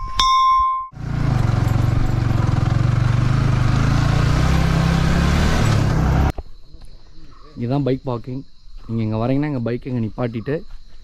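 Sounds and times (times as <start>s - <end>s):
motorcycle engine running: 1.0s - 6.3s.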